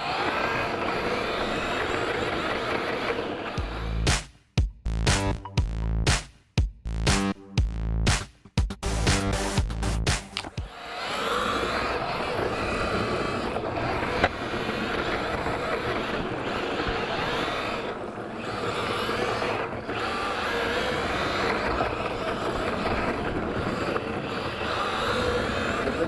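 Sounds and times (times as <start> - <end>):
rc car motor whine: 0.0 - 4.1, 10.4 - 26.0.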